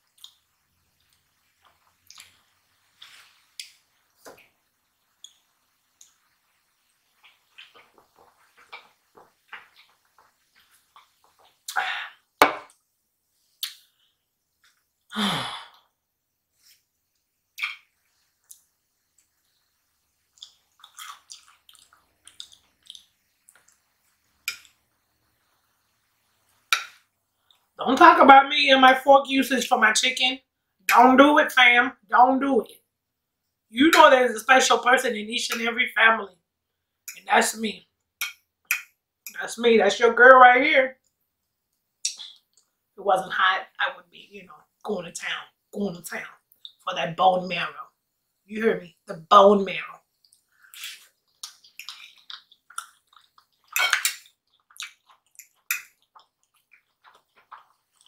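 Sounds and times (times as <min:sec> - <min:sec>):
person chewing: 0:00.1 - 0:02.4, 0:07.1 - 0:11.8, 0:20.3 - 0:24.8, 0:42.0 - 0:42.7, 0:50.2 - 0:58.0
wet mouth smacking: 0:13.6 - 0:13.9, 0:17.6 - 0:17.9, 0:50.2 - 0:58.0.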